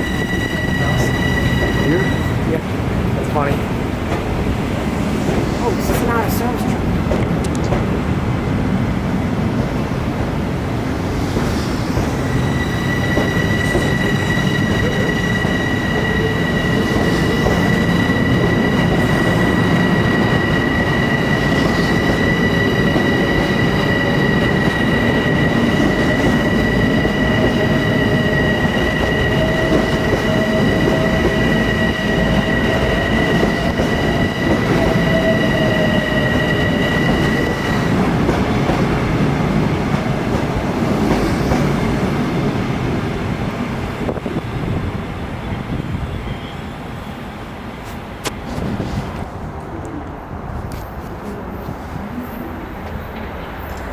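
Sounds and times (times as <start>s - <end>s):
high-pitched wheel squeal: 0.0s - 2.5s, 12.1s - 38.0s
train rumbling past: 0.0s - 53.9s.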